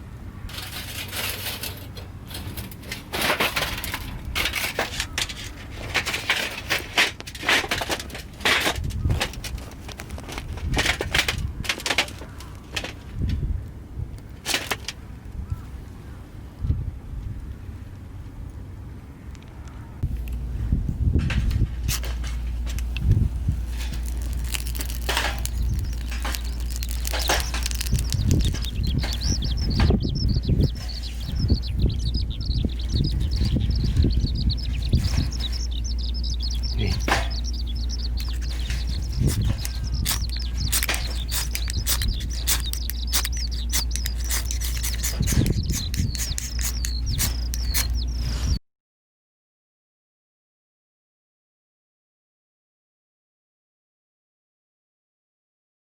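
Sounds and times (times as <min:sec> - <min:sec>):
crackling and rustling: 0:00.5 - 0:13.1, 0:21.3 - 0:48.6
steady low rumble: 0:15.0 - 0:48.6
wood fire crackling and popping: 0:23.8 - 0:29.9
small bird chirping rapidly: 0:23.9 - 0:48.6.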